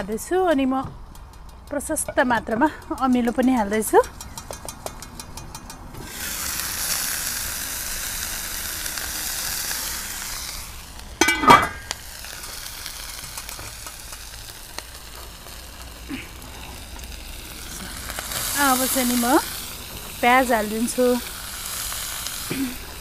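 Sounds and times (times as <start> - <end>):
chicken sizzling in oil: 6.0 - 23.0.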